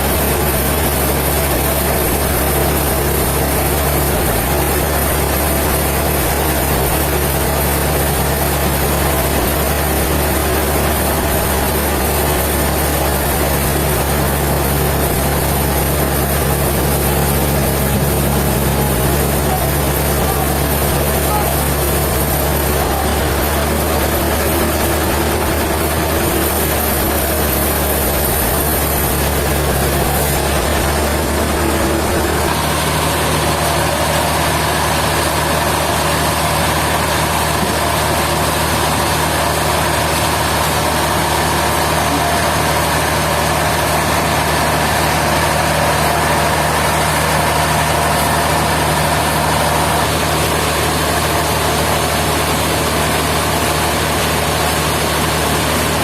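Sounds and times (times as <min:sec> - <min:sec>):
sawmill machinery droning: 0:00.0 - 0:56.0.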